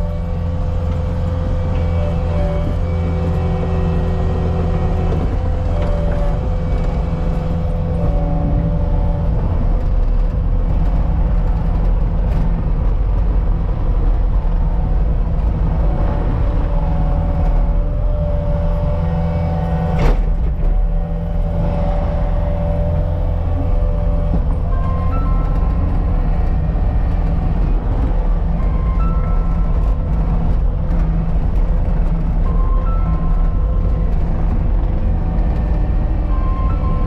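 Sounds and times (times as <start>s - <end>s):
diesel engine humming: 0.0s - 37.0s.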